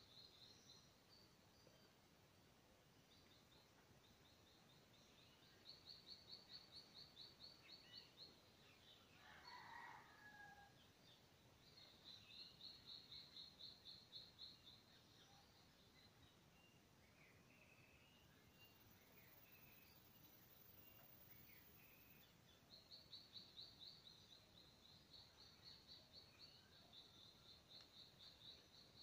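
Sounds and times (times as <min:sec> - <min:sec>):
rooster crowing faintly: 0:09.1 - 0:10.8.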